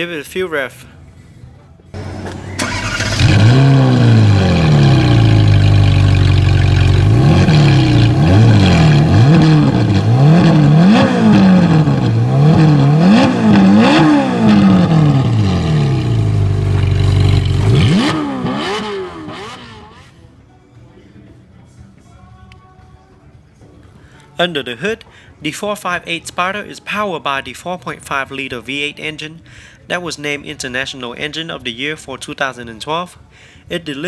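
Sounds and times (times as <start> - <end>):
car engine starting and revving: 2.0 - 20.1.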